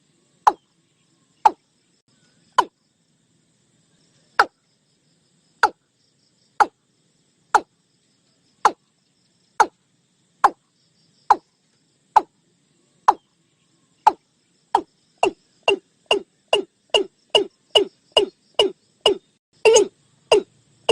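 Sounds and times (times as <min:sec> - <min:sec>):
bird calling kok notes: 0:14.8 - 0:20.9.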